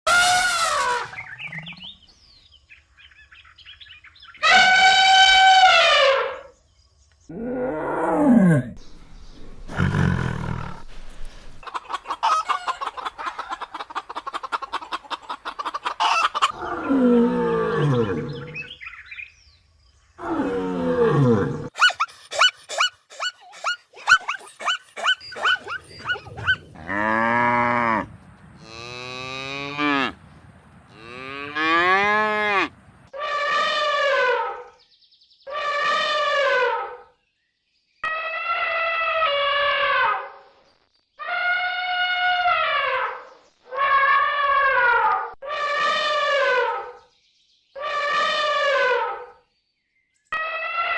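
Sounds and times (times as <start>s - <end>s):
animal calls: 9.6s - 18.8s, 20.2s - 27.1s.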